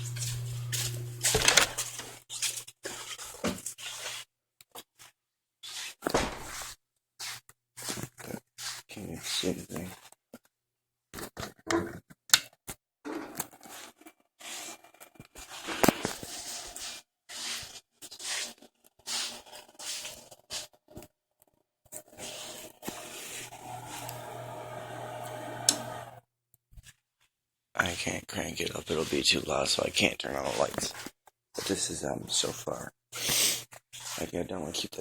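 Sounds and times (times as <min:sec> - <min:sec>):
steady low hum: 0:00.0 - 0:01.8
scraping and rustling handling: 0:00.0 - 0:04.2, 0:28.8 - 0:32.6.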